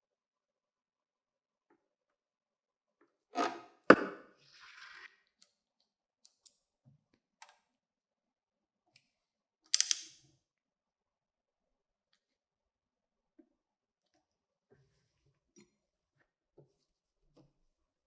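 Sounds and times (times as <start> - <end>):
quick clicks: 9.8 - 10.2.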